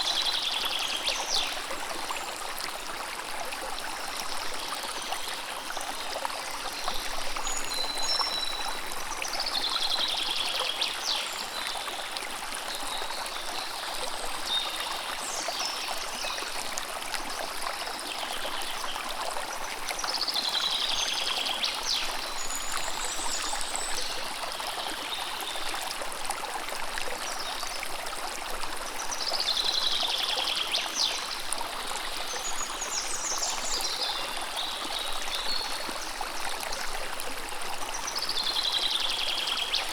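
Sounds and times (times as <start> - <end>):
river water over stones: 0.0 - 39.9
songbird singing: 7.4 - 8.8.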